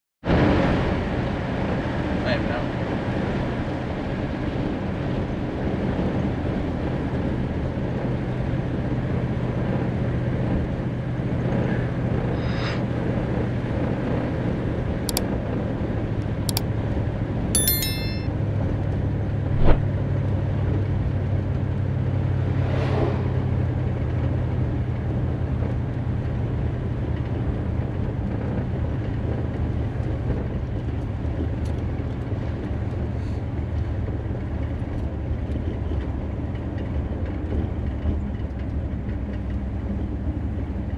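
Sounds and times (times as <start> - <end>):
road and wind noise: 21.3 - 40.9.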